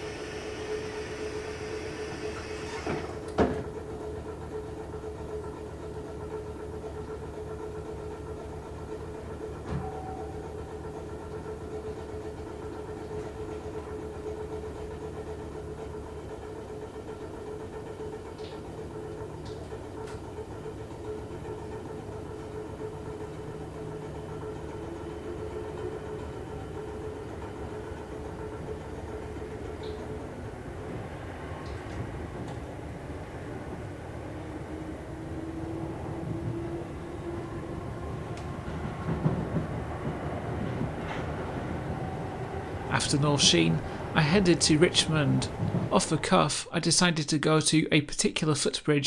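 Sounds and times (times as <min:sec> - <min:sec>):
train air hiss: 0:00.0 - 0:03.2.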